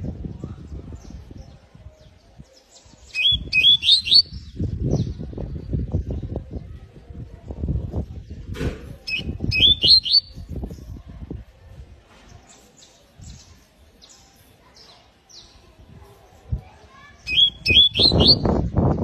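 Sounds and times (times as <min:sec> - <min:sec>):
canary chirping: 0:03.1 - 0:04.4, 0:09.1 - 0:10.4, 0:17.2 - 0:18.5.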